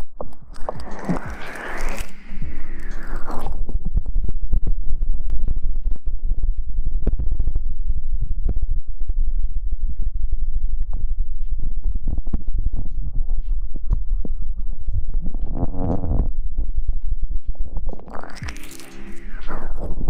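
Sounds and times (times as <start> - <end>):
deep rumble: 0.0 - 4.2, 17.7 - 20.0.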